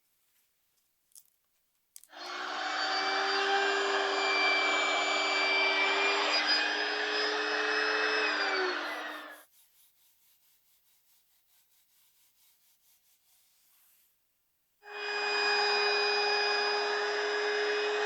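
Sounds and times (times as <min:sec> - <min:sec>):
router whining: 0:02.1 - 0:09.4, 0:14.9 - 0:18.0.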